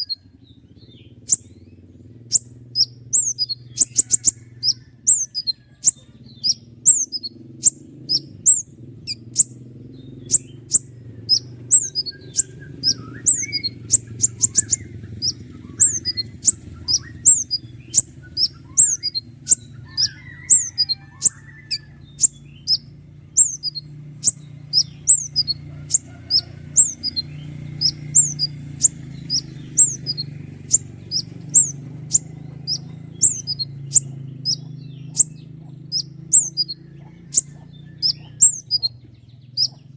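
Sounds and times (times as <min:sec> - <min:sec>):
faint lower bird twittering: 0:00.0 - 0:39.9
steady low hum: 0:00.0 - 0:39.9
bird singing sharp high notes: 0:06.4 - 0:25.6.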